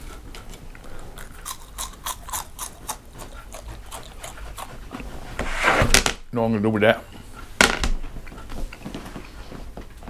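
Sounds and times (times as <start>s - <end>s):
person chewing crunchy fries: 0.0s - 5.0s.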